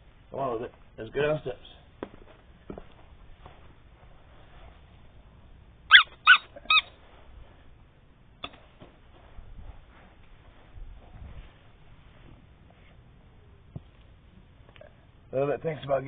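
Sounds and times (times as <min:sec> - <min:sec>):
dog yipping: 0:05.9 - 0:07.0.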